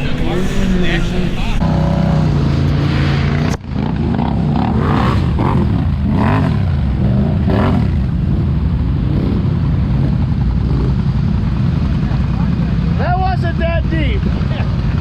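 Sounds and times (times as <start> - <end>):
truck engine revving: 0.0 - 11.4.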